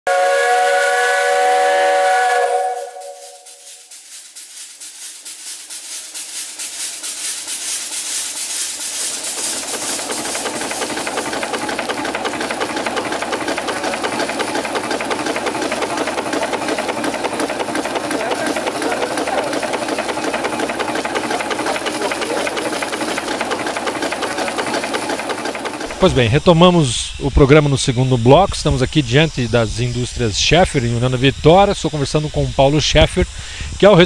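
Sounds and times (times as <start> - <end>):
steam whistle chord: 0.1 - 4.1
steam engine exhaust beats: 0.1 - 34.0.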